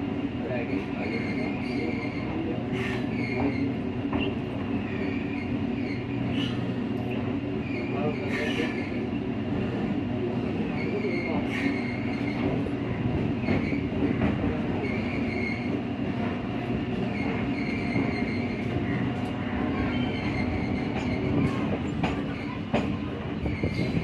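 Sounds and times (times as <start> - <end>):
train rumbling and rattling: 0.0 - 24.0.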